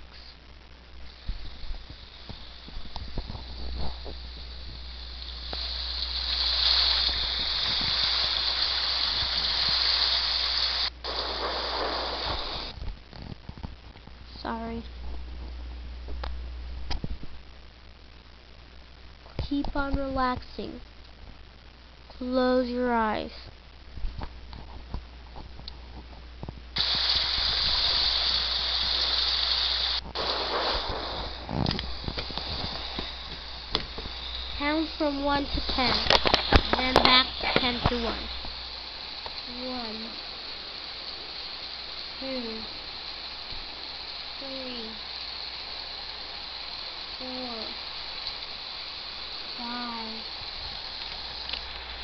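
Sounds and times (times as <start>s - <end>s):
steady hiss of rainfall: 0.0s - 52.0s.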